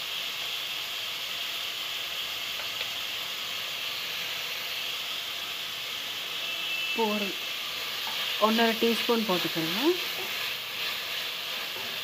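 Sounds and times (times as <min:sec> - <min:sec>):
chicken and onion sizzling in oil: 0:00.0 - 0:12.0.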